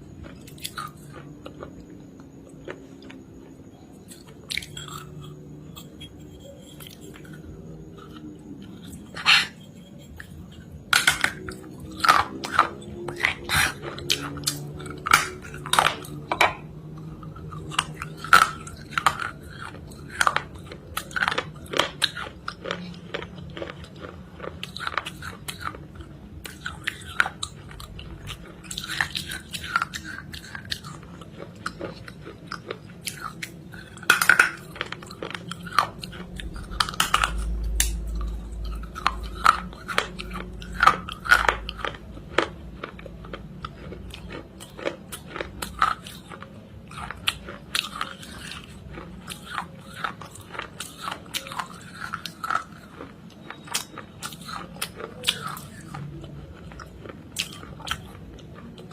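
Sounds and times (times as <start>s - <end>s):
crunchy chewing: 0.0s - 58.9s
low rumble: 34.9s - 44.2s.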